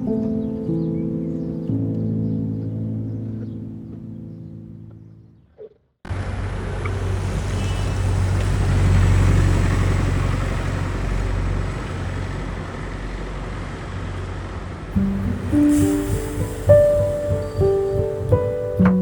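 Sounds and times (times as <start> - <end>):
piano music: 0.0 - 5.4, 14.9 - 19.0
vehicle passing: 6.1 - 18.9
street traffic rumble: 6.1 - 19.0.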